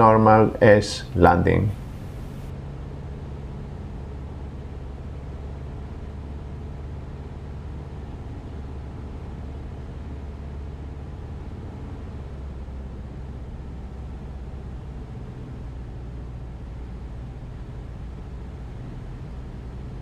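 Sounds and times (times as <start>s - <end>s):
airflow noise: 0.0s - 2.5s
airplane engine and propeller drone: 0.0s - 20.0s.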